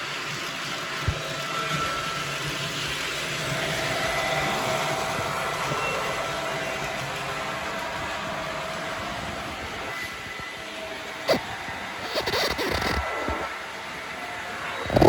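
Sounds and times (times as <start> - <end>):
model train motor whirring: 11.3 - 13.5.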